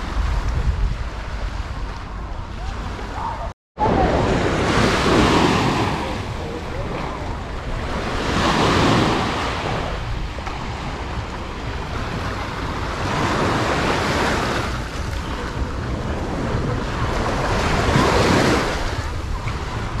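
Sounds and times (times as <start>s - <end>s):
sea waves washing on beach: 0.0s - 20.0s
wind rumbling on microphone: 0.0s - 20.0s.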